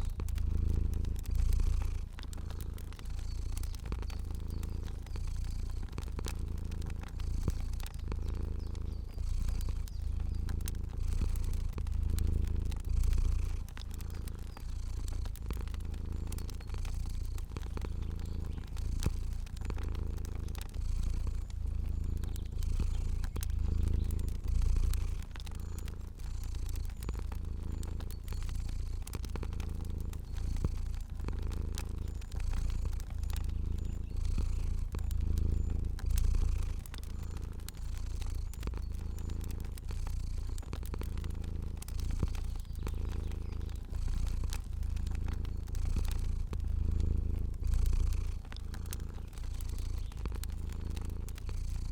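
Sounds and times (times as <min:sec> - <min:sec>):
cat purring: 0:00.0 - 0:51.9
fire crackling: 0:00.0 - 0:51.9.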